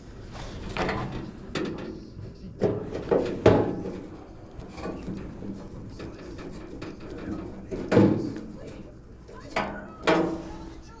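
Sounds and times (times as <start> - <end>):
scraping and rustling: 0.0 - 11.0.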